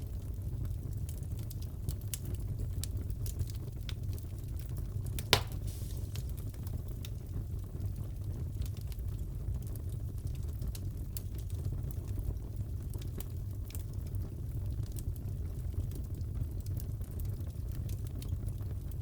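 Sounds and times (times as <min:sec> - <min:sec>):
wood fire crackling: 0:00.0 - 0:19.0
sharp loud pop of fire: 0:05.2 - 0:06.4.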